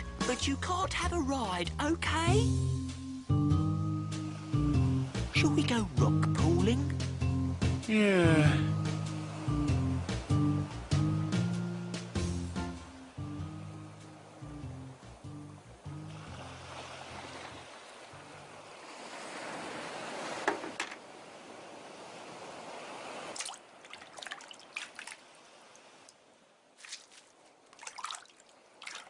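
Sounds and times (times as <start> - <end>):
sea waves washing: 4.0 - 7.2, 7.8 - 29.0
water drips and splashes: 16.1 - 20.7, 23.0 - 29.0.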